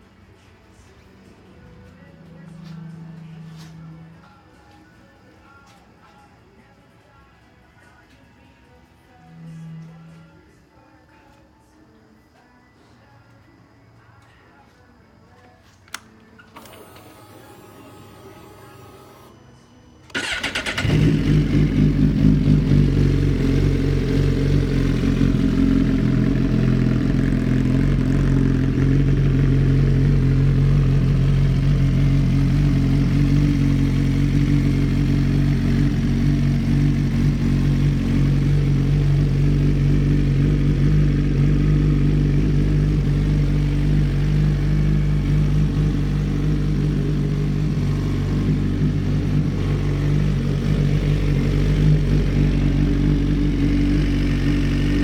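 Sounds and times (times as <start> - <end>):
motorcycle starter whir: 15.9 - 19.3, 20.0 - 38.6
motorcycle engine idling: 20.1 - 55.0.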